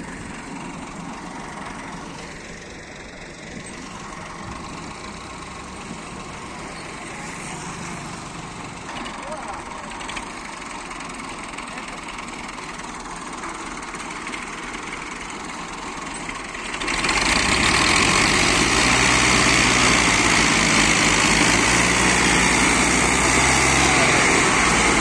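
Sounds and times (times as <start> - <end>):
motor engine idling: 0.0 - 17.8.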